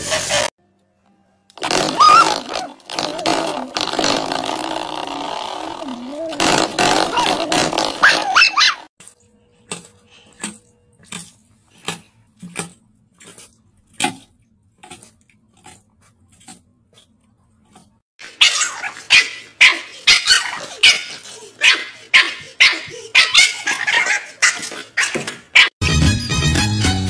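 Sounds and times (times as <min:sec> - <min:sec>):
dog barking: 0:02.0 - 0:02.7, 0:08.0 - 0:08.9, 0:18.4 - 0:25.7.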